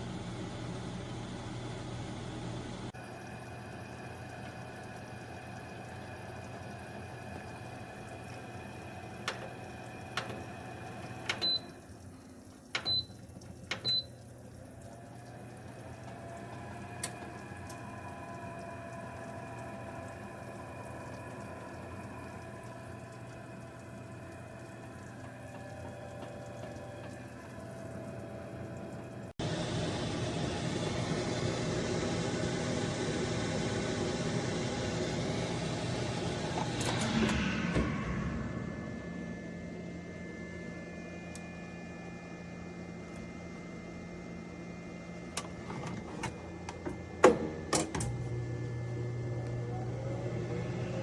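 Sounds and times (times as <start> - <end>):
air fryer fan hum: 0.0 - 51.0.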